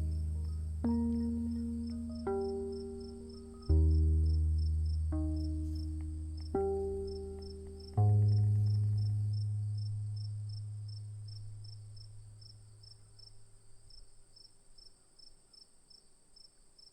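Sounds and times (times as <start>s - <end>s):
low musical note: 0.0s - 12.7s
crickets chirping: 9.8s - 16.9s.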